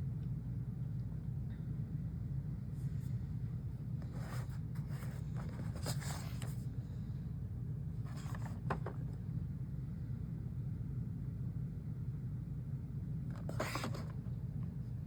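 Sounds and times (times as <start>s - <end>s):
steady low hum: 0.0s - 15.0s
plastic action figure being handled: 8.1s - 9.1s.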